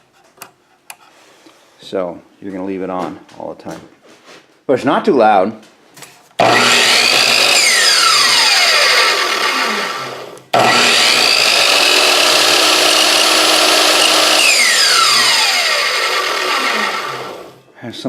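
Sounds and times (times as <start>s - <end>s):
miter saw motor whine: 6.4s - 17.6s.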